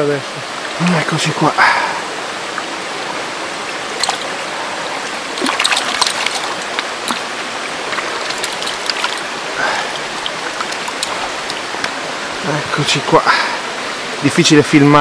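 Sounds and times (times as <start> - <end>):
stream running over stones: 0.0 - 15.0
sharp splashes: 1.8 - 12.1.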